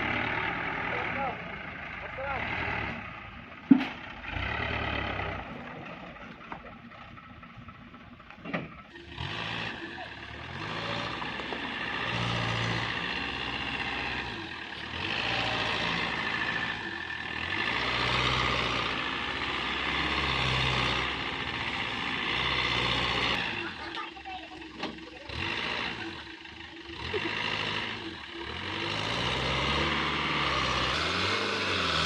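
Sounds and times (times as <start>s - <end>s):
diesel truck engine revving: 0.0s - 32.0s.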